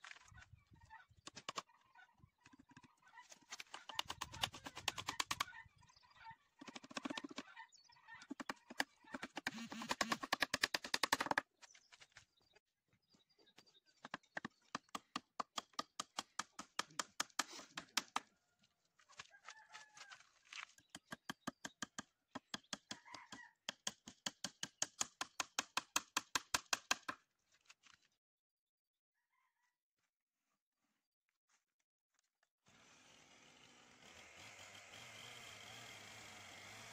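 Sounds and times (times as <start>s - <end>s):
chickens calling: 0.3s - 10.0s, 22.8s - 23.6s.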